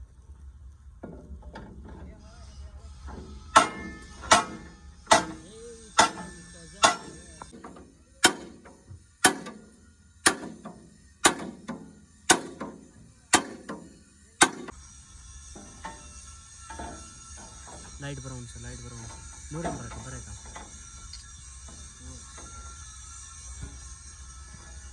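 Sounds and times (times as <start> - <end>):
hammer striking metal: 3.1 - 14.7.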